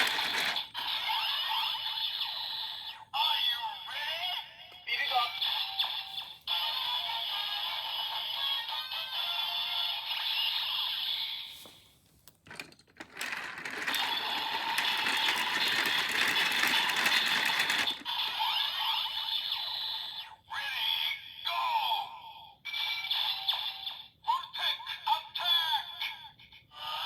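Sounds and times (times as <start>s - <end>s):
toy belt electronic sound effects: 0.0s - 2.5s, 12.5s - 19.7s.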